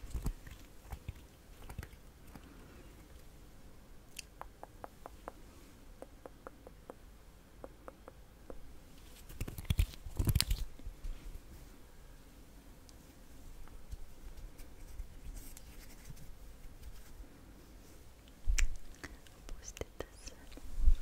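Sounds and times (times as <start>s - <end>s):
soft mouth clicks: 0.1s - 2.5s, 4.1s - 5.4s, 6.0s - 7.0s, 7.6s - 8.6s, 18.2s - 20.6s.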